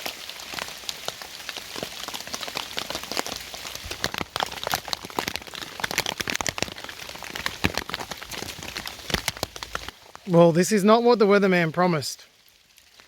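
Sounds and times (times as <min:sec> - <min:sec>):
raindrops pattering on a tarp: 0:00.0 - 0:13.0
steady rain: 0:00.0 - 0:13.0.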